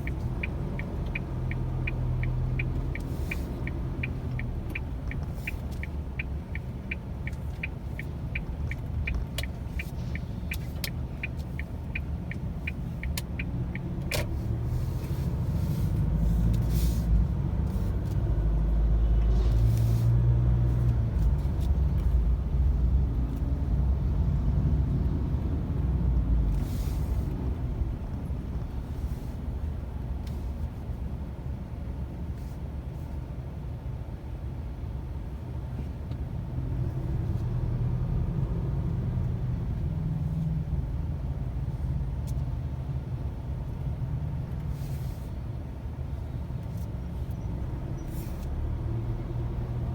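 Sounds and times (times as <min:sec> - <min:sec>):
turn signal ticking: 0:00.0 - 0:19.8
car driving rumble: 0:00.0 - 0:49.9.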